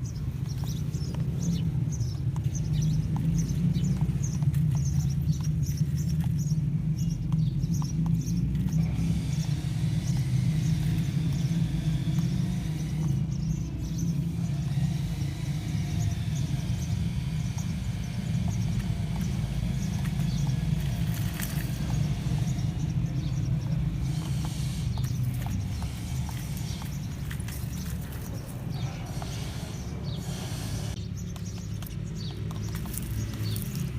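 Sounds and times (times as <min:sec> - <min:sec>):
small electric motor whining: 0:08.8 - 0:31.0.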